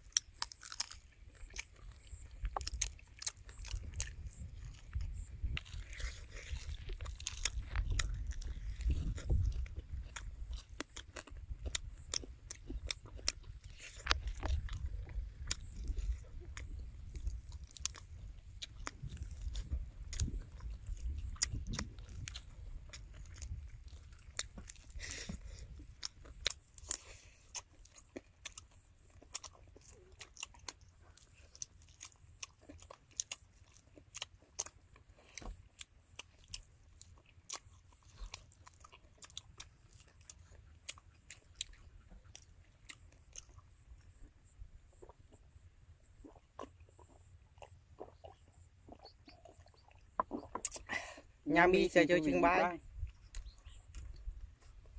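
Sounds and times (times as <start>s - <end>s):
sharp crackles of bones: 0.0s - 44.3s
chewing and crunching fried quail: 0.0s - 54.9s.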